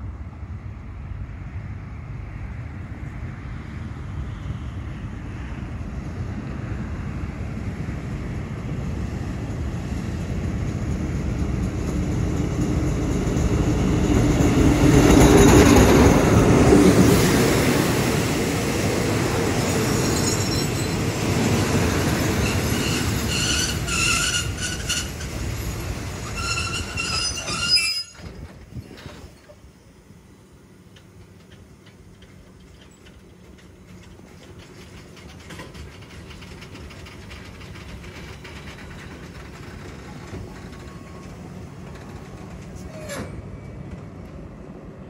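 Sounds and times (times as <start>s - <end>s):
diesel locomotive engine: 0.0s - 45.0s
train coaches rolling: 7.0s - 45.0s
high-pitched brake squeals: 19.8s - 21.1s, 22.3s - 28.3s, 42.8s - 43.8s.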